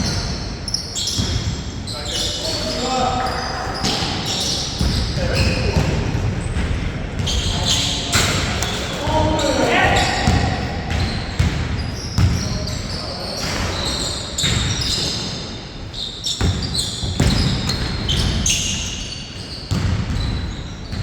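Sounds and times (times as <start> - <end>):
basketball bouncing: 8.2 - 12.7, 16.4 - 18.5, 19.7 - 21.0.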